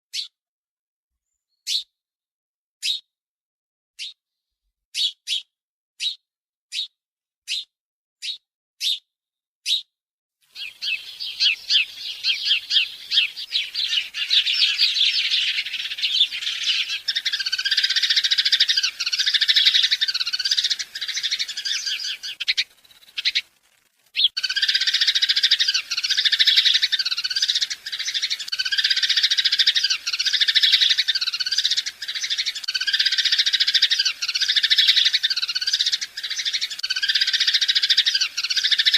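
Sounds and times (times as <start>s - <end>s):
birds chirping: 10.5s - 23.6s, 24.2s - 38.9s.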